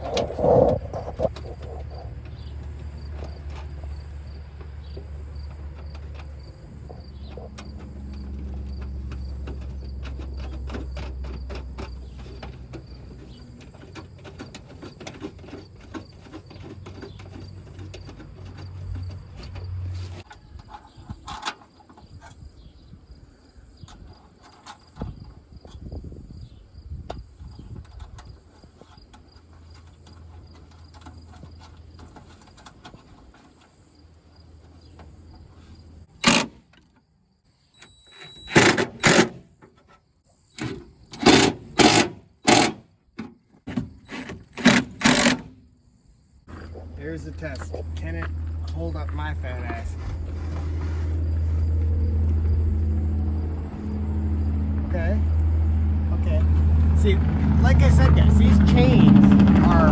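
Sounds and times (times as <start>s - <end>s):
low hum: 0.0s - 13.0s, 46.5s - 59.9s
crickets chirping: 0.0s - 38.6s, 39.5s - 59.8s
small clicks and rattles on metal: 1.3s - 22.4s.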